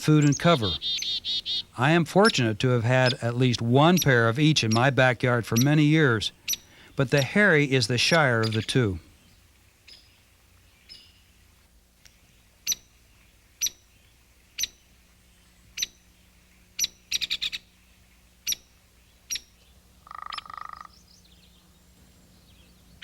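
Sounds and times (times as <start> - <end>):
woodpecker call notes: 0.0 - 11.4, 12.0 - 23.0
woodpecker buzzing rattle: 0.2 - 8.7, 15.7 - 21.6.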